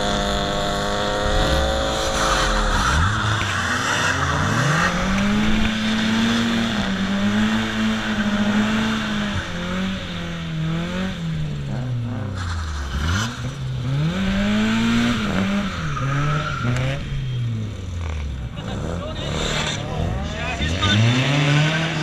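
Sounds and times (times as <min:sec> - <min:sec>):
car engine revving hard: 0:00.0 - 0:22.0
tyres squealing and skidding: 0:01.6 - 0:09.1, 0:14.6 - 0:22.0.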